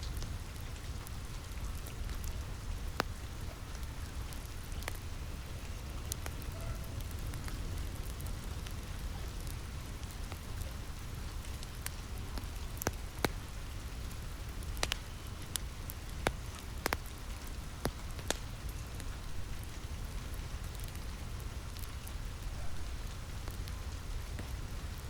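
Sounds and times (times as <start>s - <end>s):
fire crackling: 0.0s - 25.0s
rain on a roof: 0.0s - 25.0s.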